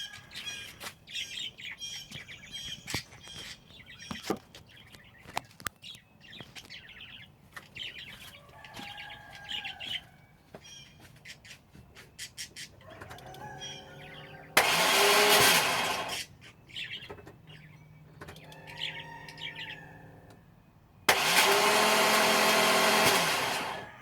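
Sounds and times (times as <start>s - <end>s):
small birds chirping: 0.0s - 15.2s, 16.1s - 21.1s.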